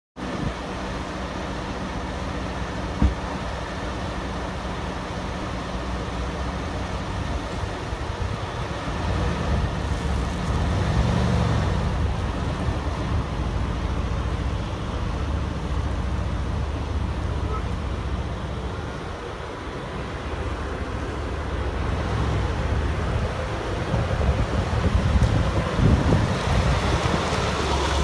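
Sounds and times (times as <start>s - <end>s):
car engine idling: 0.2s - 10.8s, 11.7s - 28.0s
car door shutting: 2.9s - 3.5s.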